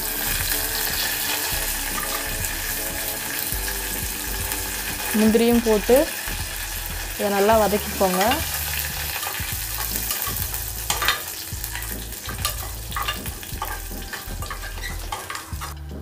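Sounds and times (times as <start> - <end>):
spices sizzling in hot oil: 0.0 - 16.0
spoon scraping pan bottom: 7.8 - 15.8.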